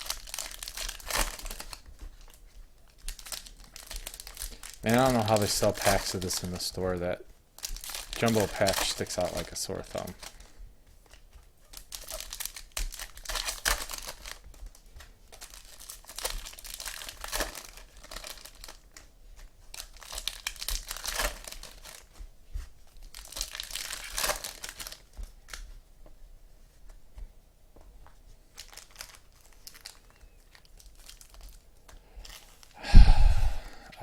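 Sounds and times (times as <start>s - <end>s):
card pack wrappers tearing: 0.0s - 2.3s, 2.9s - 10.5s, 11.7s - 14.5s, 15.3s - 18.8s, 19.7s - 22.2s, 23.0s - 25.6s, 28.6s - 31.6s.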